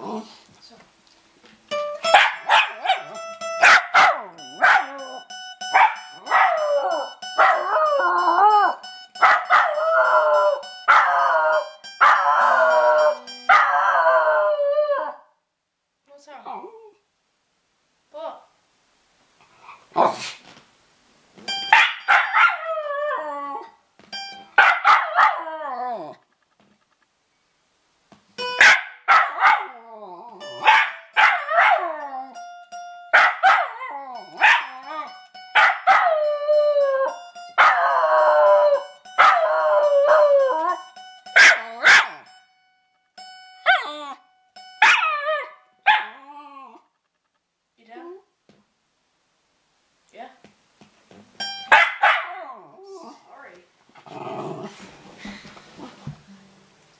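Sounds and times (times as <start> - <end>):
guitar strumming: 1.5 - 14.6, 21.4 - 23.4, 24.0 - 25.5, 28.2 - 29.4, 30.4 - 45.9, 51.1 - 52.1, 54.8 - 56.9
dog howling: 6.2 - 15.3, 22.2 - 23.8, 24.8 - 26.2, 33.5 - 40.8.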